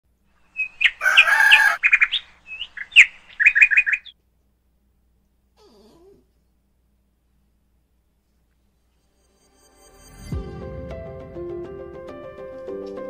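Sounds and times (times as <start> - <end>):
bird chirping and trilling: 0.4 - 4.2.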